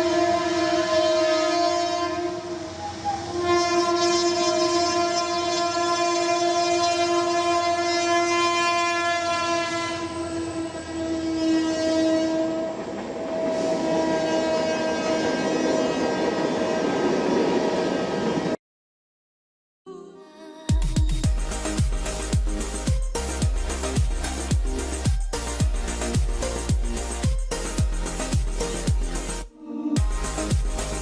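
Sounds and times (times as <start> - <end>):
train horn blasts: 0.0 - 17.0.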